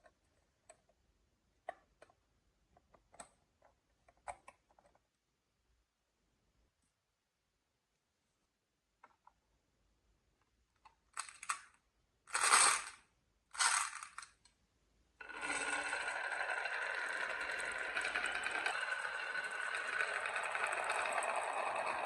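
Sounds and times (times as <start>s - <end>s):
marbles clattering on wood: 15.2s - 22.0s
marbles rolling along wooden track: 15.2s - 22.0s.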